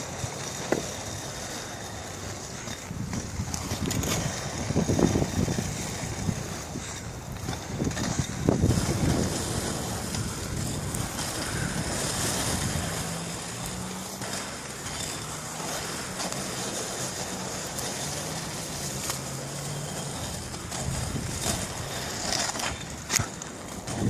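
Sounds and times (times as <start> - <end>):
wind rushing over microphone: 2.7 - 14.3, 20.1 - 24.0.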